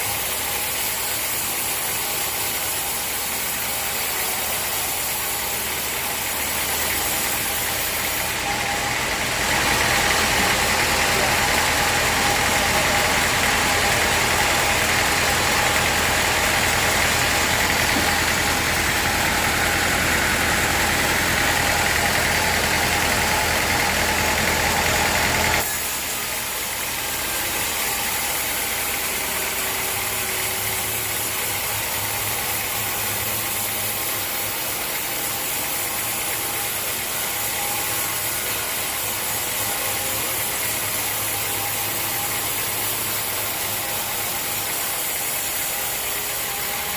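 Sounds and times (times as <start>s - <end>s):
hissing saw cutting: 0.0s - 46.9s
sawmill machine running: 0.0s - 46.9s.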